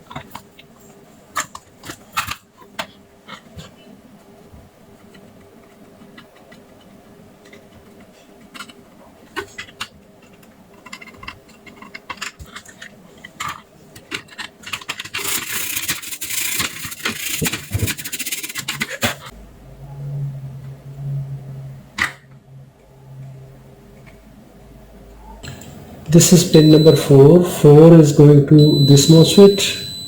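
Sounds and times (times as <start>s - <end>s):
tools clicking and scratching: 5.1s - 19.3s
low steady hum: 19.2s - 30.0s.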